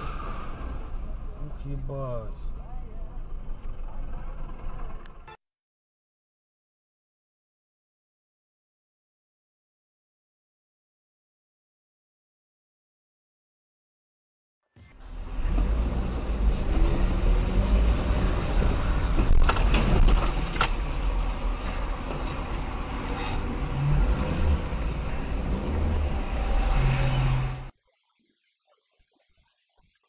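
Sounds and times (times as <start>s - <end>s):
heavy vehicle engine and road rumble: 0.0s - 5.4s, 14.8s - 27.7s.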